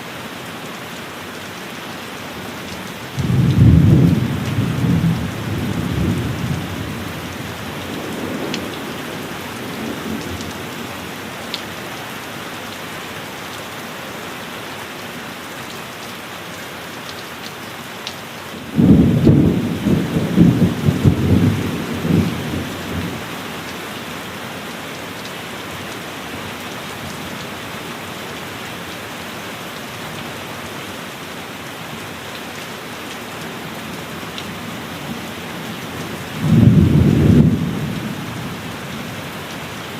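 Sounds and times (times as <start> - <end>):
heavy rain: 0.0 - 39.9
thunder crack and rumble: 3.2 - 6.8, 18.7 - 23.1, 36.4 - 38.2
thunder rolling: 18.8 - 23.1, 36.4 - 38.1.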